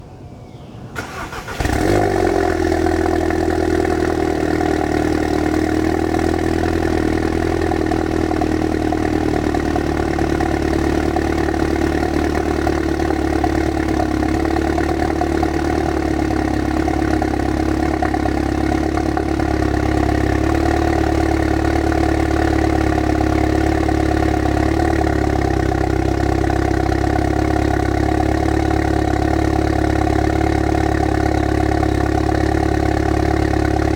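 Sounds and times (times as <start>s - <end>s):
car engine cranking: 1.0s - 8.3s
car engine idling loudly: 1.0s - 33.9s.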